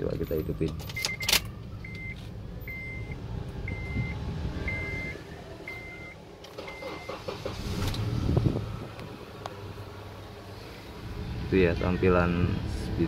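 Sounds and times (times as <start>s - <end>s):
car engine cranking and starting: 0.0s - 13.0s
dashboard warning chime beeping: 0.2s - 7.4s.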